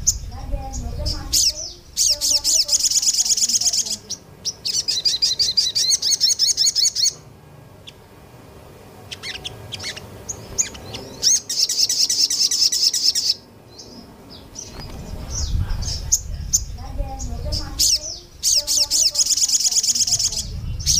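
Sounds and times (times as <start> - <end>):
songbird chattering: 0.0 - 8.1, 9.0 - 20.9
single bird chirps: 9.1 - 13.4.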